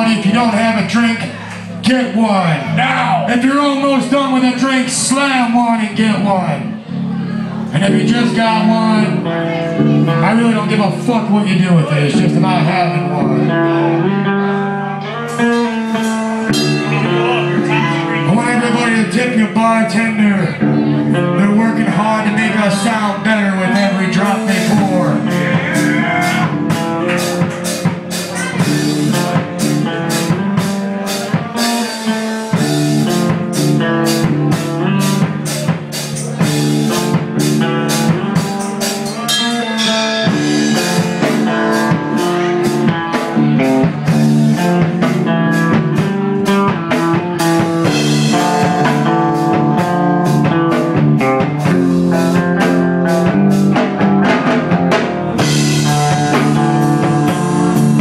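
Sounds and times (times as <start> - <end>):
electric guitar riff: 0.0 - 58.0
drum kit hits: 15.3 - 18.9, 23.8 - 58.0.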